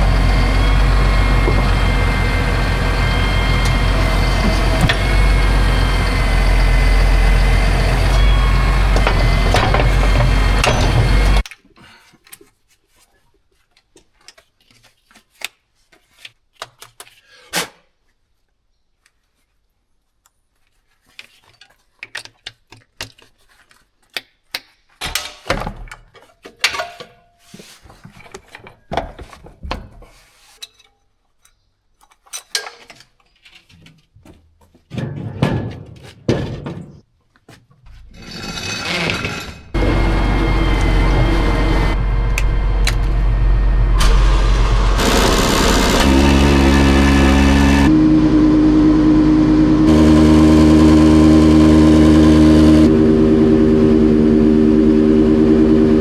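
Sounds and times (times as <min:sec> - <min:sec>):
engine starting and running: 0:00.0 - 0:11.4, 0:38.3 - 0:56.0.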